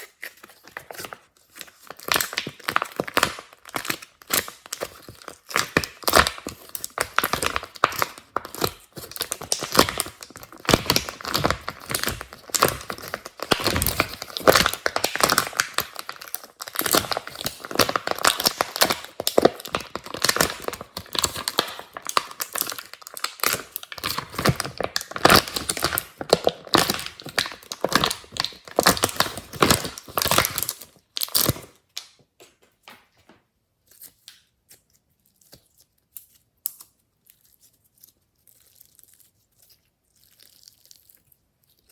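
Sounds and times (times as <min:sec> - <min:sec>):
slime crackling and popping: 0:00.0 - 0:32.2.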